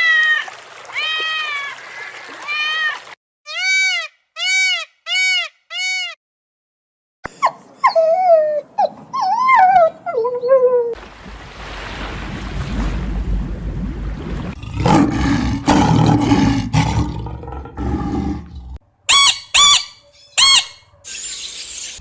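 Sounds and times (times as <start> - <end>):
dog whimpering and yipping: 7.3 - 11.0
arched whining calls: 19.1 - 22.0.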